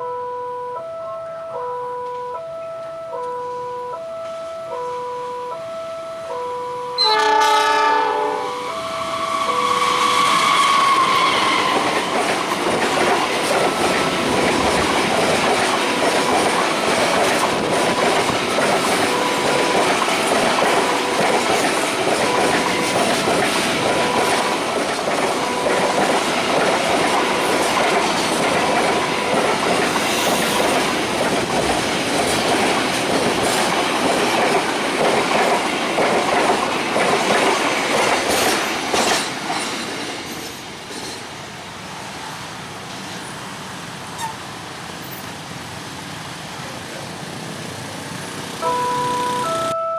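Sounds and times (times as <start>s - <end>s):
faint high tone: 0.0s - 7.2s, 48.6s - 49.9s
train wheels clattering on rails: 9.8s - 41.5s.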